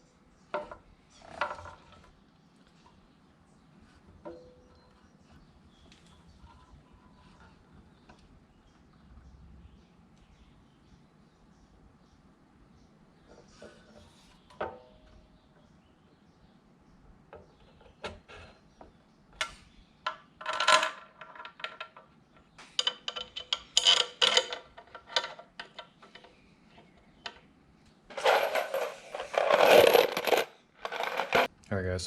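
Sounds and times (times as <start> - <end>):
small metal bolts clinking: 19.4 - 26.4, 28.1 - 31.5.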